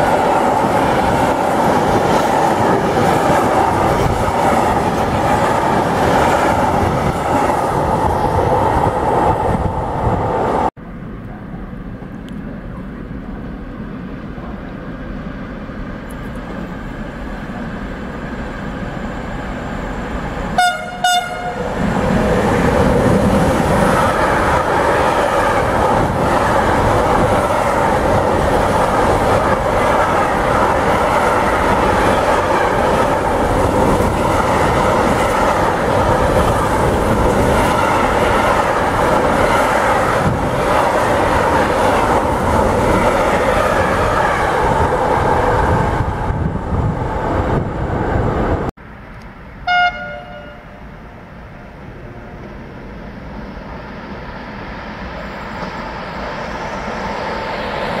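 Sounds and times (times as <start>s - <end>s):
freight train passing at speed: 0.0s - 58.0s
train horn blast: 20.6s - 21.7s, 49.6s - 51.0s.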